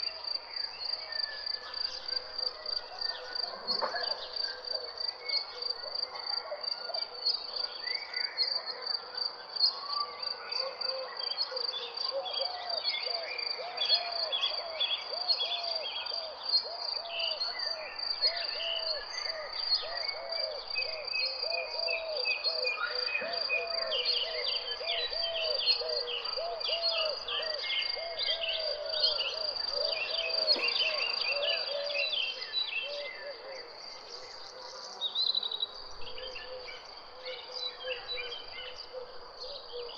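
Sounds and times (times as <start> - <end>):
bird low repeated calls: 21.3 - 34.8.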